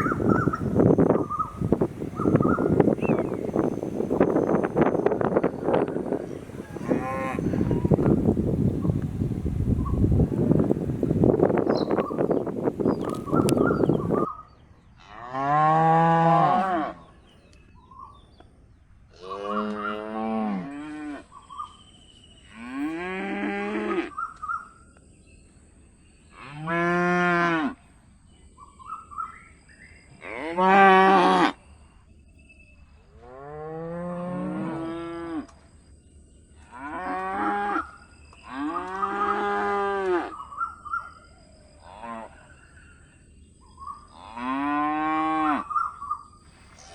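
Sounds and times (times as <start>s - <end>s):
wind on microphone: 0.0s - 14.6s
calf mooing: 6.7s - 8.0s.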